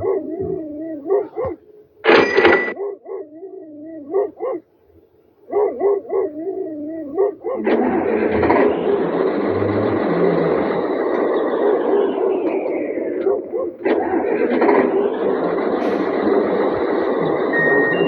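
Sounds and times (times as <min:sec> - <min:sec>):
dog whining and yelping: 0:00.0 - 0:01.7, 0:02.6 - 0:04.6, 0:05.5 - 0:07.8, 0:11.1 - 0:14.0.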